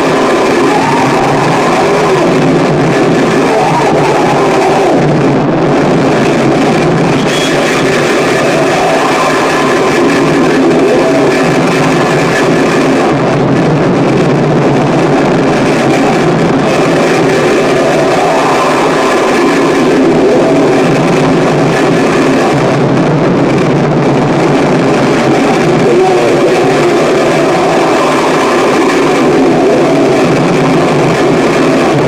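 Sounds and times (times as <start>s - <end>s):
harsh distorted noise music: 0.0s - 32.0s.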